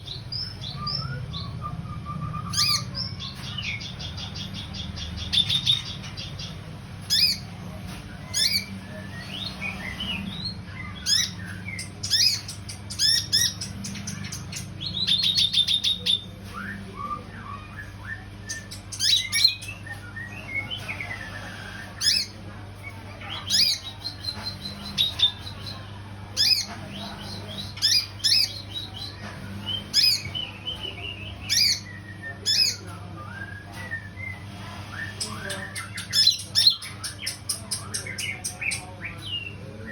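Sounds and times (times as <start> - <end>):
bird chirping: 0.0 - 16.4, 17.0 - 21.3, 21.9 - 32.9.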